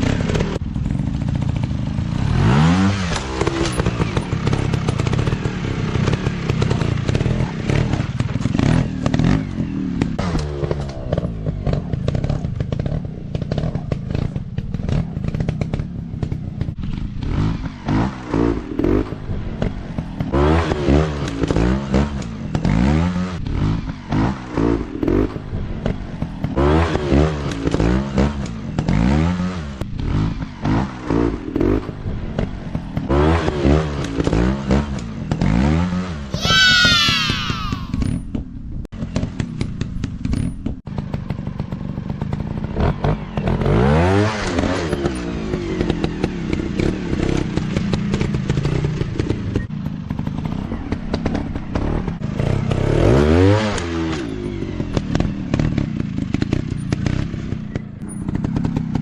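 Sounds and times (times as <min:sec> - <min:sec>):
dirt bike engines revving: 0:30.7 - 0:38.1.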